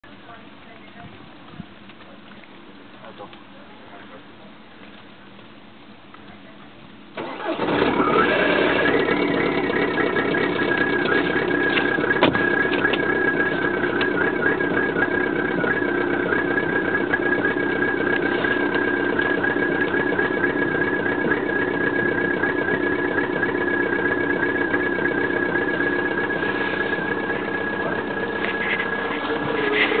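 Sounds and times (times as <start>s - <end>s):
diesel engine starting and idling: 7.1s - 30.0s
high whine: 8.5s - 30.0s.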